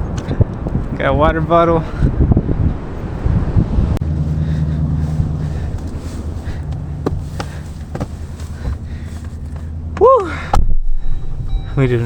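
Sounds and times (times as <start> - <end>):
car engine running: 2.4 - 12.0.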